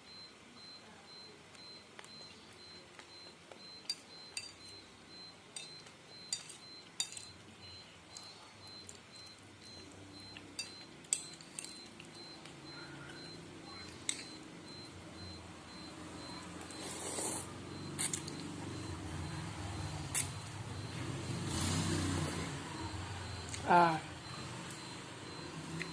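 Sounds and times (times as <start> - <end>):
cutlery clinking against a bowl: 3.8 - 4.8, 5.6 - 7.4, 10.3 - 12.2.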